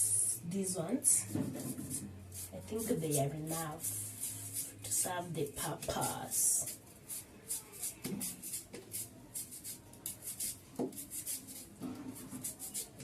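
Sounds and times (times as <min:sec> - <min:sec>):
knife cutting onions: 0:01.4 - 0:13.0.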